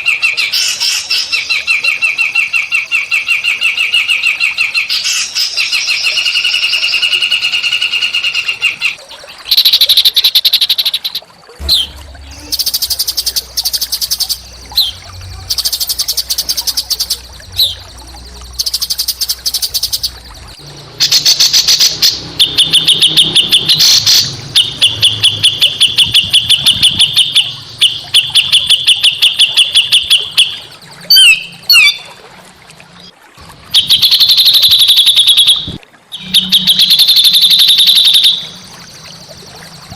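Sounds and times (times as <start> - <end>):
songbirds trilling: 0.0 - 32.2, 33.7 - 39.9
faint low hum: 11.6 - 21.4.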